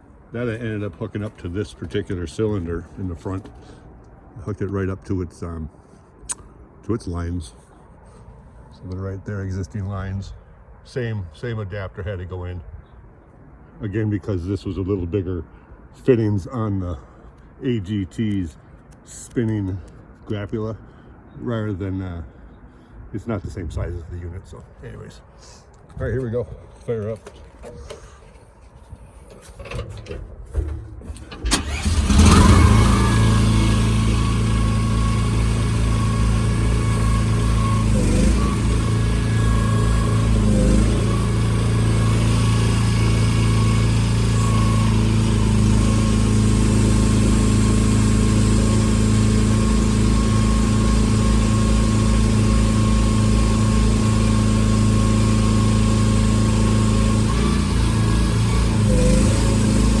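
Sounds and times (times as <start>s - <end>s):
excavator engine starting and running: 0.0s - 4.5s, 25.8s - 60.0s.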